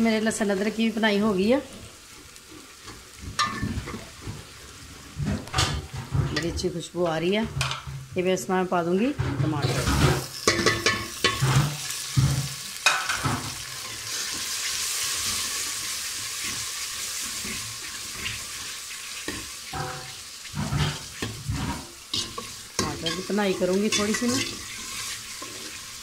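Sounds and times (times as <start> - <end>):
tomatoes sizzling in a pot: 0.0 - 26.0
ladle knocking and scraping a pot: 2.9 - 6.7, 9.2 - 13.6, 19.3 - 25.8.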